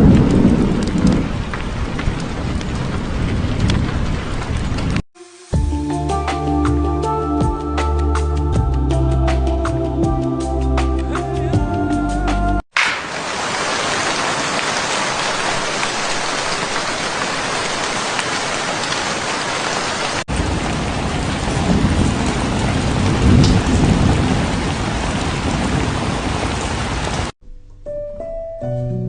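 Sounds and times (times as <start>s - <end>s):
distant thunder rumbling: 0.0s - 5.0s, 12.8s - 27.3s
steady rain falling: 0.0s - 5.0s, 12.7s - 27.4s.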